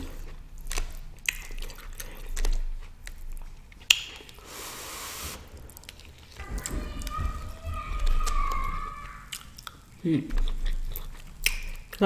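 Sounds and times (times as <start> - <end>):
wet chewing mouth sounds: 0.0 - 6.7, 9.3 - 12.0
short hiss: 4.4 - 6.4.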